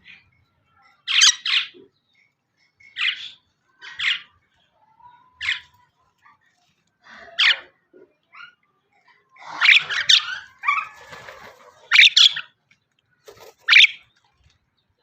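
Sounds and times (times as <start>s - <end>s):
bird harsh calls: 0.0s - 4.4s, 8.4s - 12.6s, 13.2s - 14.2s.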